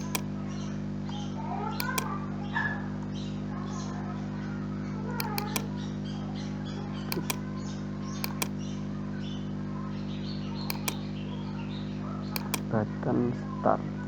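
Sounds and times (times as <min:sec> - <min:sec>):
computer mouse clicks: 0:00.0 - 0:00.3, 0:01.8 - 0:02.1, 0:05.2 - 0:05.7, 0:07.1 - 0:07.5, 0:08.2 - 0:08.6, 0:10.6 - 0:11.1, 0:12.4 - 0:12.7
steady electrical hum: 0:00.0 - 0:14.0
small birds chirping: 0:04.8 - 0:12.7.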